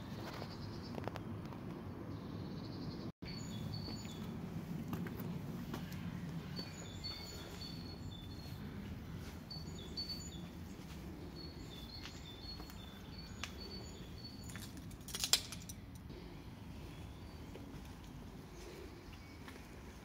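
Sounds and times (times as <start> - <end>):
small birds chirping: 0.0 - 14.9, 15.6 - 20.0
low background rumble: 1.9 - 15.0.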